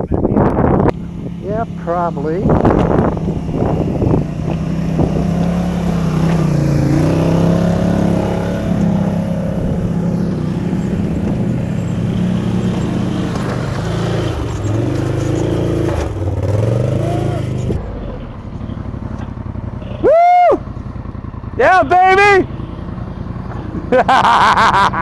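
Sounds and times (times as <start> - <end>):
atv engine revving under load: 0.5 - 18.4.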